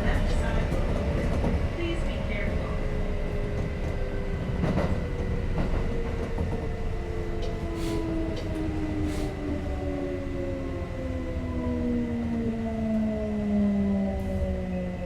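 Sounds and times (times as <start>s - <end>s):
train running rumble: 0.0s - 10.8s.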